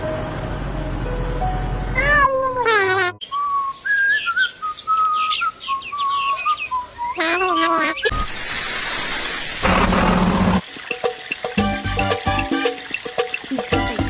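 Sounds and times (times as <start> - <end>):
meow-like animal cries: 2.0 - 3.2.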